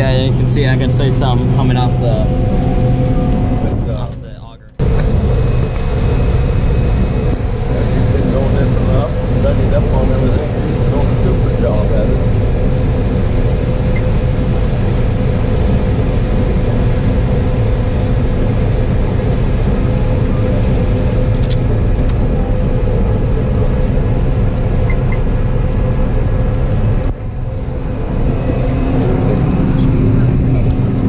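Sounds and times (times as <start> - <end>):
combine harvester running: 0.0 - 31.0.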